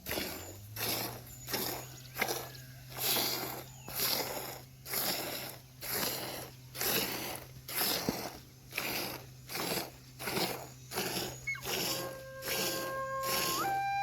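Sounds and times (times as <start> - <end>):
rhythmic scraping strokes: 0.0 - 14.0.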